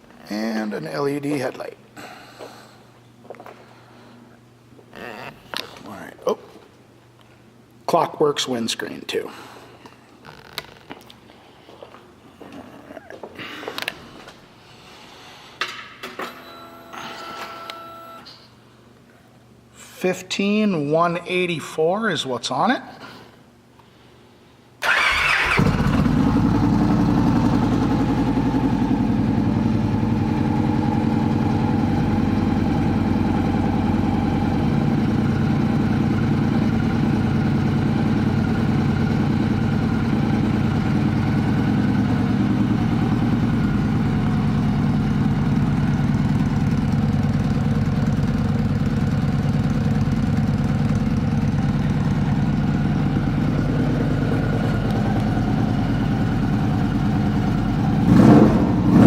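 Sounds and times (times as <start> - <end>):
electric starter cranking: 24.8 - 26.5
motorcycle engine idling: 24.9 - 58.9.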